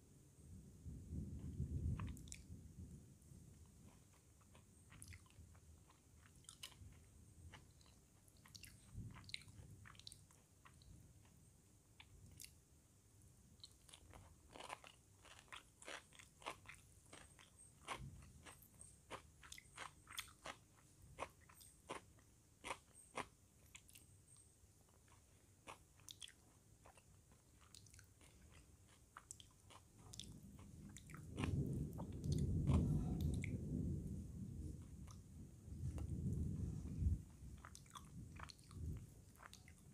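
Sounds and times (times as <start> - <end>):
person chewing crunchy food: 3.9 - 10.8, 13.6 - 33.5, 37.6 - 39.9
muffled low-pitched noise: 30.2 - 39.9.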